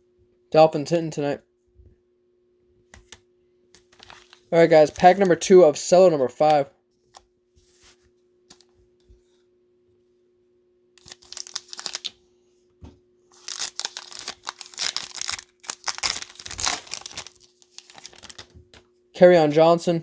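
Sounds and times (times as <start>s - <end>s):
cellophane wrapper crinkling: 3.8s - 5.4s, 11.0s - 12.2s, 13.3s - 18.8s.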